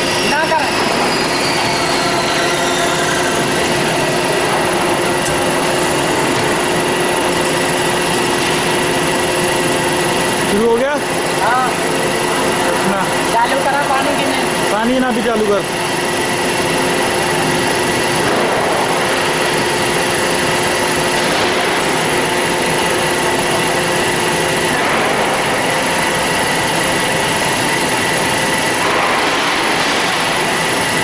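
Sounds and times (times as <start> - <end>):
band saw running: 0.0 - 31.0.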